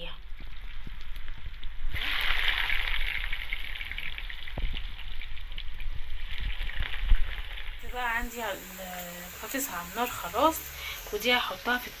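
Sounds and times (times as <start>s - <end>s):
potatoes frying in oil: 0.0s - 12.0s.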